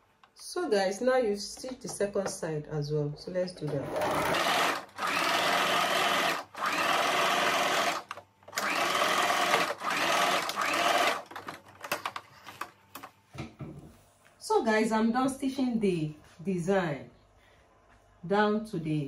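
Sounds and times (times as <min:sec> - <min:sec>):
sewing machine stitching: 0:03.7 - 0:11.6.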